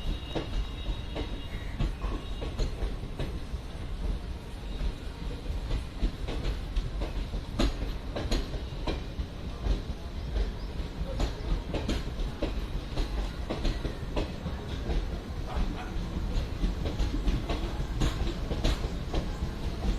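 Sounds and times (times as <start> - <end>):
passenger train rumbling past: 0.0 - 19.9
wheels clicking over rail joints: 5.6 - 19.9.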